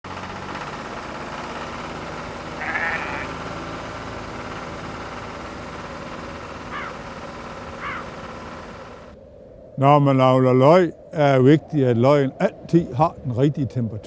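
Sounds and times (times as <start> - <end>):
steady humming background: 1.8 - 9.3
sheep bleating: 2.6 - 3.5.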